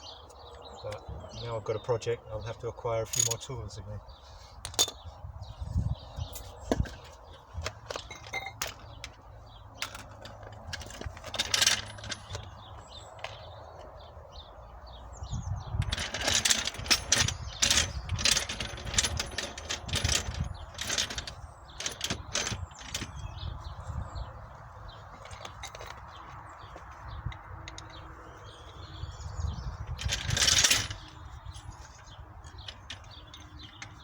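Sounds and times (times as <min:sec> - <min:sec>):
metallic tool clinks and knocks: 0:07.9 - 0:08.8.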